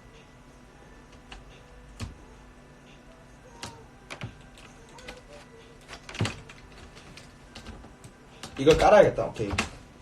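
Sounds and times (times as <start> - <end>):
typing on computer keyboard: 3.5 - 9.8.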